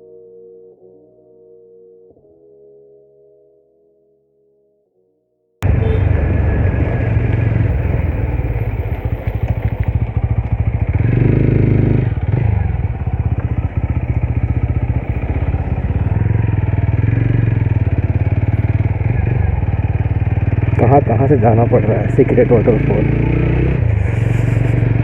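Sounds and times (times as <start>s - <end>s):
motorcycle engine running: 5.6s - 25.0s.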